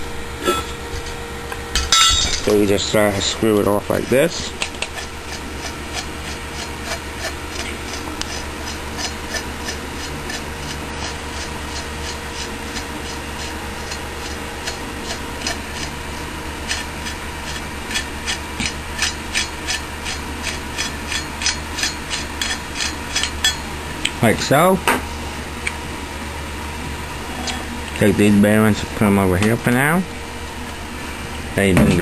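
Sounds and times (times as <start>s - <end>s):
rasping turning with light clicks: 3.9s - 23.6s.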